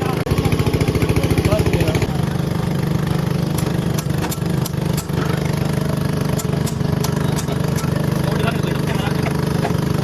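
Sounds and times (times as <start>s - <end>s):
engine humming: 0.0s - 10.0s
sharp knocks: 3.5s - 5.4s.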